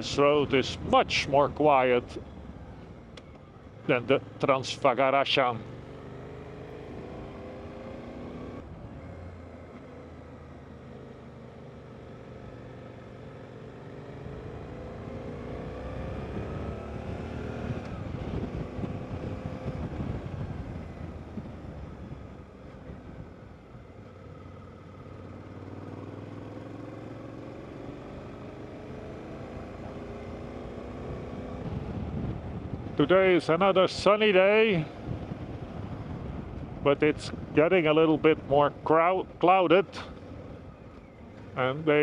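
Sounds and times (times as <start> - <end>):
road and wind noise: 0.0 - 42.0
motorcycle engine accelerating: 5.6 - 33.8, 34.5 - 38.6.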